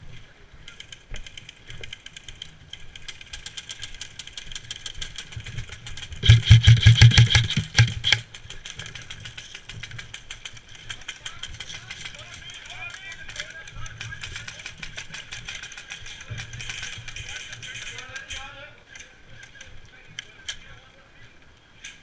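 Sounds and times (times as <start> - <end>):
airsoft guns firing full-auto: 6.0 - 8.2, 10.2 - 18.1.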